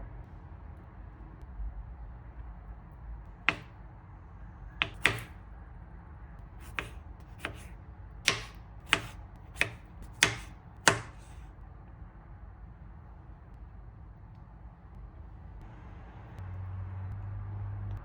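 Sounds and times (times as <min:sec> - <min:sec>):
knife chopping on a cutting board: 0:03.5 - 0:03.7, 0:04.8 - 0:05.4, 0:06.6 - 0:11.4.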